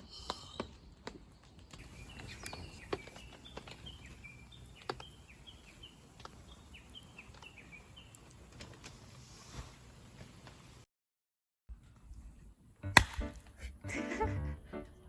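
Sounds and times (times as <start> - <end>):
low outdoor background: 0.0 - 10.9
bird whistling song: 1.8 - 8.4.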